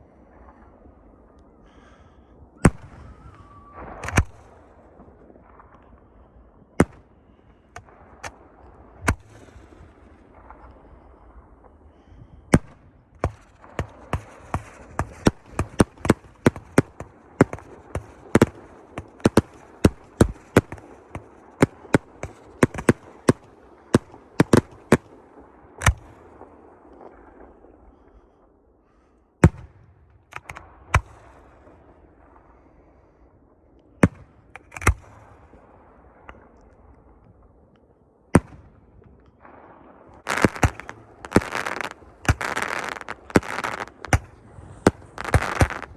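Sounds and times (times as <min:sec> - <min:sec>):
fireworks bangs: 0:01.6 - 0:28.2, 0:38.2 - 0:45.9.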